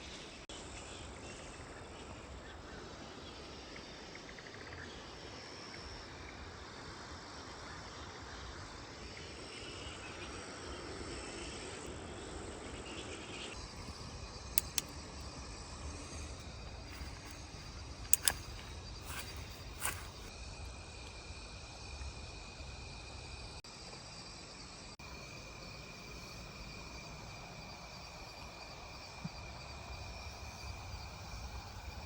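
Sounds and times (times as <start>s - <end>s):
insects chirring: 0.0s - 32.0s
sharp cracks: 16.9s - 20.3s.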